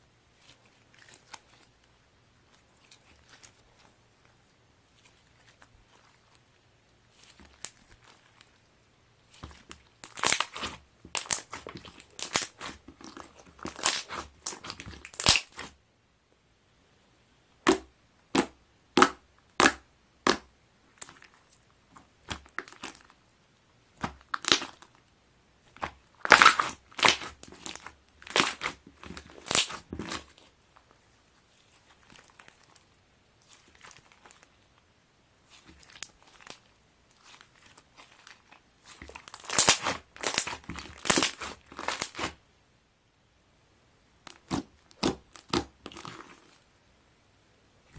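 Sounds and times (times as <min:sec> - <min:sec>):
slime crackling and popping: 0:09.3 - 0:15.8, 0:22.0 - 0:23.2, 0:24.0 - 0:25.0, 0:25.7 - 0:30.4, 0:35.5 - 0:42.4, 0:44.2 - 0:46.6.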